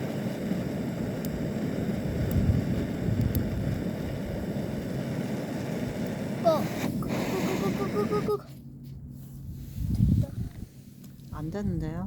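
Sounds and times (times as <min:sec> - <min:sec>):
gas torch flame rushing: 0:00.0 - 0:08.4.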